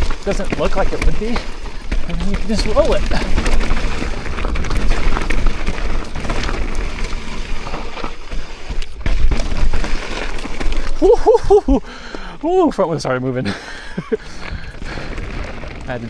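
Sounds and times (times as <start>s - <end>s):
bike knocks and rattles: 0.0s - 12.2s
bike tyre noise: 0.0s - 16.0s.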